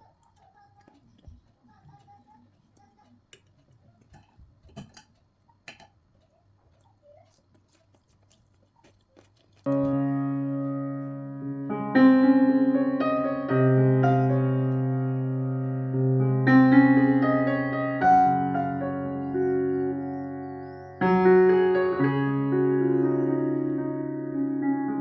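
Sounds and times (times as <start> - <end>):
slow piano chords: 9.7 - 25.0.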